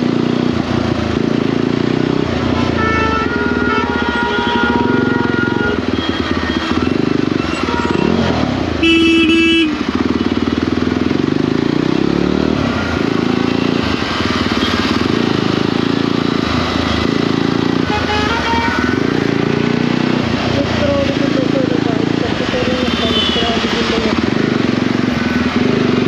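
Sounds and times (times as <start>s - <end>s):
motorcycle engine running: 0.0s - 26.0s
motorcycle horn blast: 2.6s - 9.9s, 17.8s - 19.1s, 22.8s - 23.7s.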